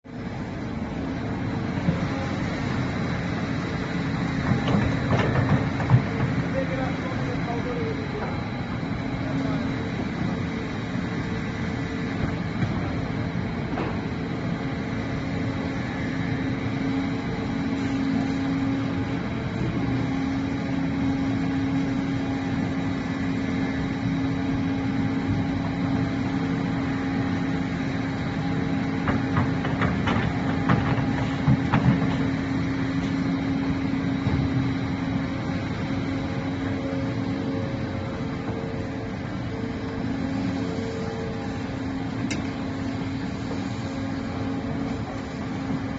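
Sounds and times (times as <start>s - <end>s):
excavator engine droning: 0.1s - 45.9s
clanks and knocks: 4.4s - 6.8s, 29.0s - 32.4s.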